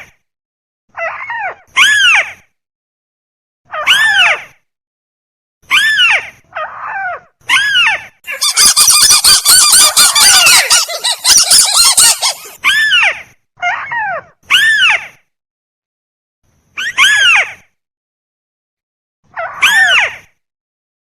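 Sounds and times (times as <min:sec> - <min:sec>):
crake calls: 0:08.3 - 0:12.6.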